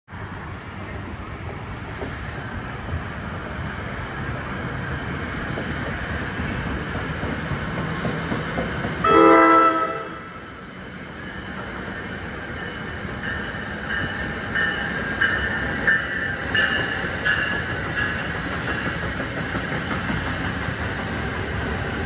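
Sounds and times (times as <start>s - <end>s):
train rumbling past: 0.1s - 22.0s
train horn blast: 9.0s - 10.4s.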